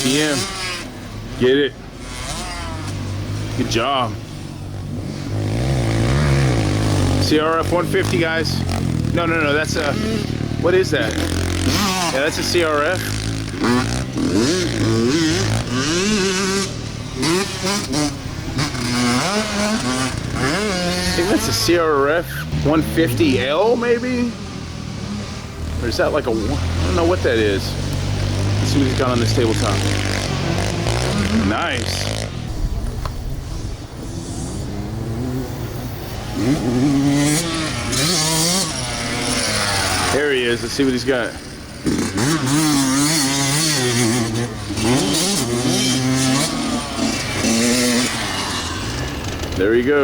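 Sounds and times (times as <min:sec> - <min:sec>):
dirt bike engines revving: 0:00.0 - 0:50.0
low engine drone: 0:32.2 - 0:36.7.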